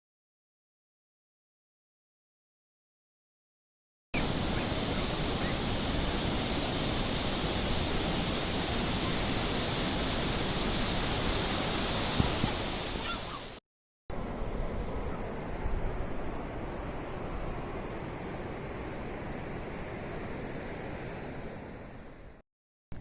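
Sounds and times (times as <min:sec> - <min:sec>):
sea surf rushing: 0:04.2 - 0:22.4.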